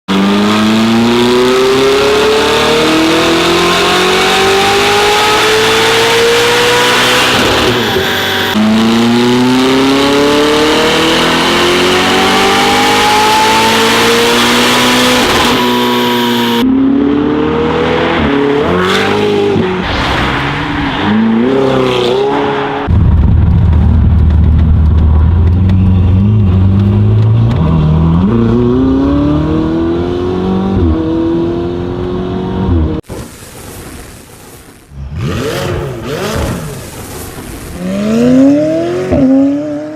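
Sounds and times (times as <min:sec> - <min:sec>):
engine revving through gear changes: 0:00.1 - 0:19.6, 0:25.6 - 0:33.0
low engine rumble: 0:22.9 - 0:28.2
car engine full-throttle pulls: 0:23.6 - 0:33.0.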